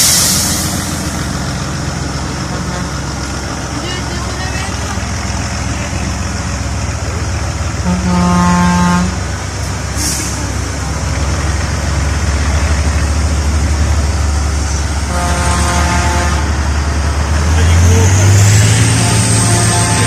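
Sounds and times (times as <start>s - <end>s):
diesel truck engine running: 0.0s - 20.0s
truck horn: 2.4s - 3.1s, 7.8s - 9.3s, 15.0s - 16.7s, 17.6s - 20.0s.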